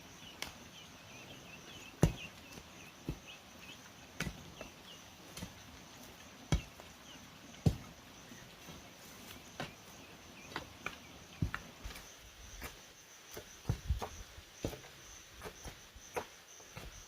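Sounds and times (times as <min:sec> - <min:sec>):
bird chirping: 0:00.0 - 0:12.7
insect drone: 0:00.0 - 0:17.0
chopping strikes: 0:02.0 - 0:02.3, 0:04.2 - 0:04.7, 0:06.5 - 0:06.9.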